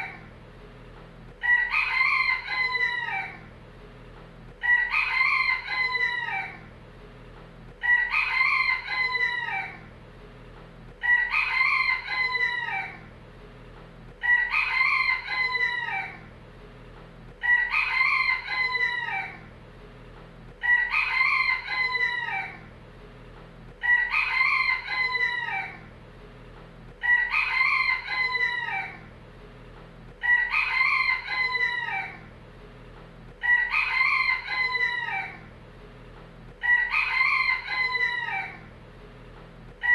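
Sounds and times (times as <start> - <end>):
rooster crowing: 1.4 - 3.5, 4.6 - 6.7, 7.8 - 9.9, 11.0 - 13.1, 14.2 - 16.3, 17.4 - 19.5, 20.6 - 22.7, 23.8 - 25.9, 27.0 - 29.1, 30.2 - 32.3, 33.4 - 35.5, 36.6 - 38.7.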